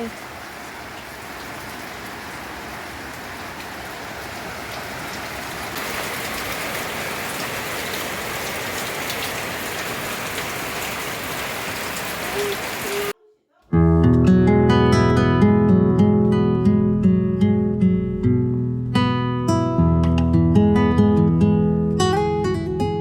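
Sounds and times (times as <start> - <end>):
rain falling: 0.0 - 13.2.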